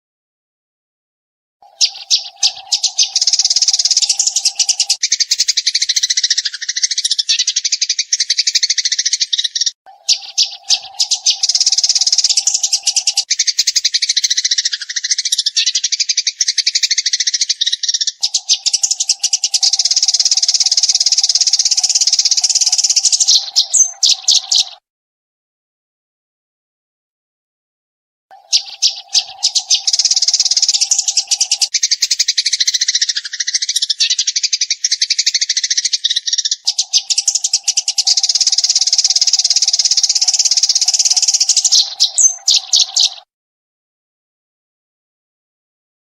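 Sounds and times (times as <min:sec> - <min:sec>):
sparrows chirping: 0:01.6 - 0:24.8, 0:28.3 - 0:43.3.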